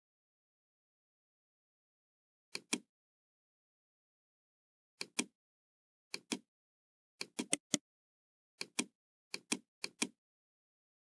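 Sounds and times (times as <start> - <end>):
computer mouse clicking: 2.5 - 2.9, 5.0 - 5.3, 6.1 - 6.4, 7.2 - 7.8, 8.6 - 10.2.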